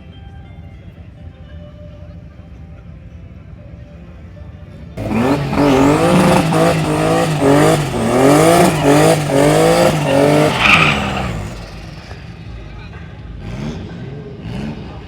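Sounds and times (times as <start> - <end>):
tyres hissing and squealing: 5.0 - 12.3
car engine revving hard: 5.0 - 12.5, 13.4 - 15.0.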